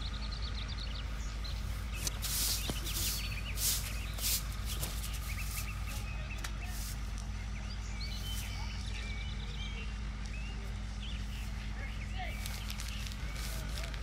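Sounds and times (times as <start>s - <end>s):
small birds chirping: 0.0s - 14.0s
street background hum: 0.0s - 14.0s
short rustling noises: 1.5s - 7.3s, 11.3s - 14.0s.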